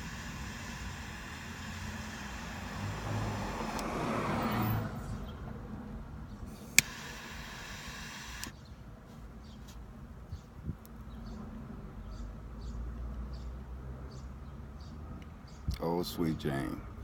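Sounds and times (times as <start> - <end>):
steady low hum: 0.0 - 3.9, 6.3 - 8.5
sharp click: 0.0 - 4.0, 6.6 - 8.5
lighter rushing hiss: 0.0 - 4.8, 6.5 - 8.5.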